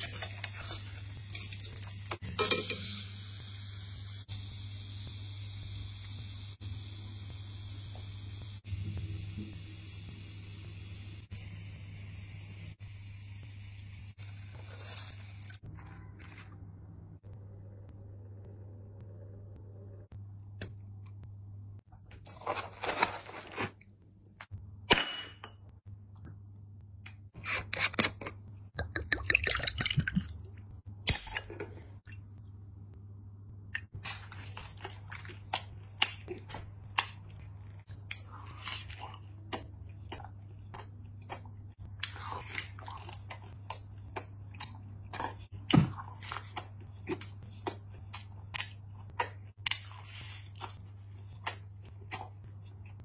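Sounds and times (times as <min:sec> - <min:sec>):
steady low hum: 0:16.6 - 0:22.2.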